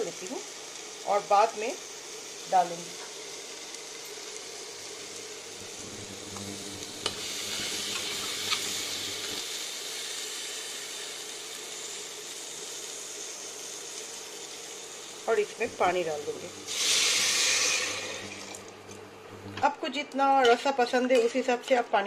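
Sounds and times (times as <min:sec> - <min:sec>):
food sizzling in oil: 0:00.0 - 0:22.0.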